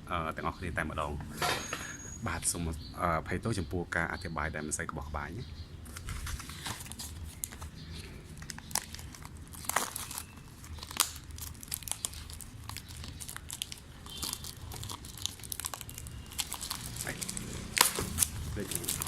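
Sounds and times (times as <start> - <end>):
plastic packaging crinkling: 5.9 - 19.0.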